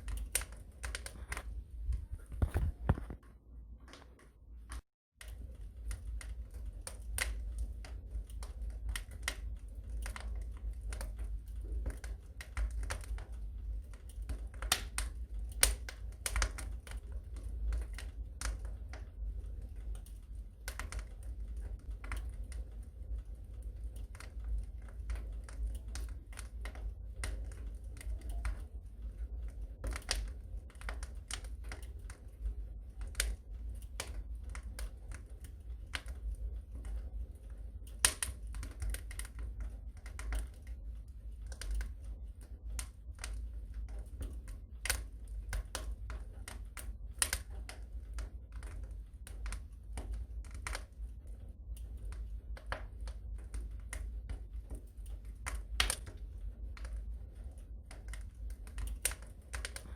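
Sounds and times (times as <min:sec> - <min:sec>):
low steady rumble: 0:00.0 - 0:59.9
wood fire crackling: 0:00.0 - 0:59.9.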